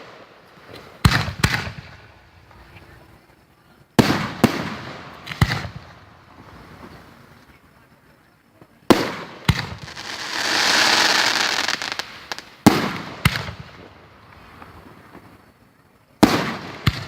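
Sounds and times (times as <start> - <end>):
fireworks sharp bangs: 0.0 - 3.0, 4.0 - 7.2, 8.8 - 15.4, 16.2 - 17.0
firework hiss: 0.0 - 3.3, 3.9 - 7.7, 8.9 - 15.5.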